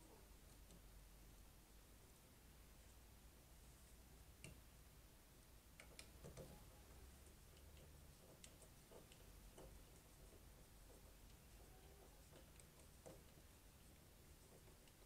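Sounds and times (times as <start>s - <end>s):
faint clicks and taps: 4.4s - 4.7s, 5.7s - 15.0s.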